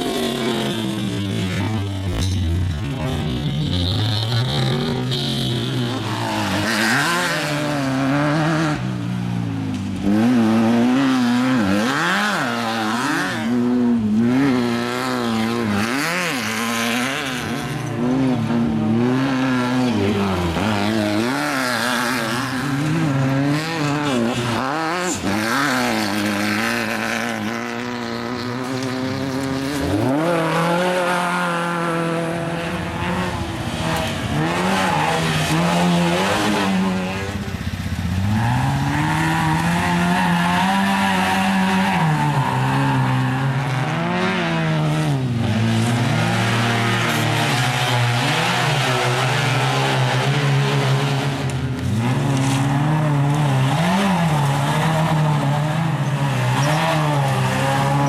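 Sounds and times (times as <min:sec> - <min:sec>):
race vehicle engine revving: 0:00.0 - 0:58.0.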